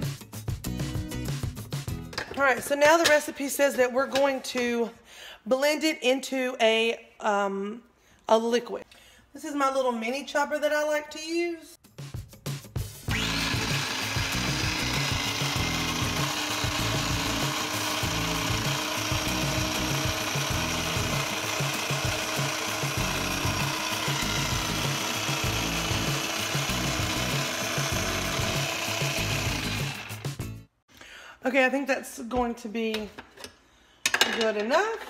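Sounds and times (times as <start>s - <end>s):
food chopper motor whirring: 13.1s - 30.5s.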